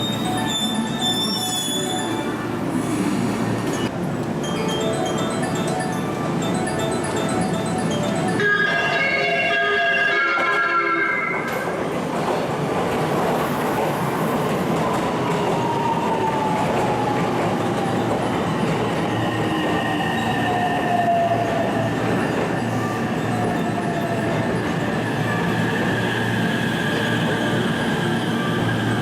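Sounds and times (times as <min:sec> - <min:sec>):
train wheels squealing on rails: 0:00.0 - 0:03.9, 0:13.4 - 0:29.0.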